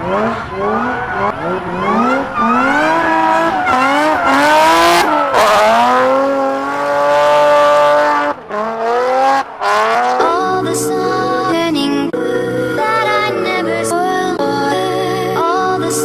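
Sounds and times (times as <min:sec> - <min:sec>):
car engine revving hard: 0:00.0 - 0:10.6
tires squealing: 0:00.0 - 0:11.6.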